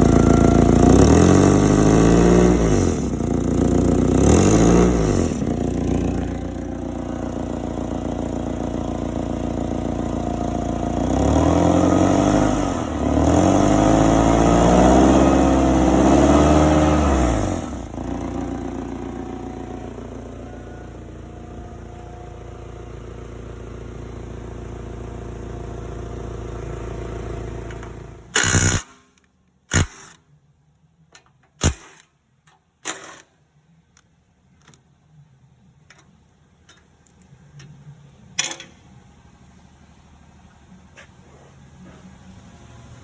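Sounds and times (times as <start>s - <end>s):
engine cut-off burst: 0.0s - 30.2s
forklift engine running: 0.0s - 43.0s.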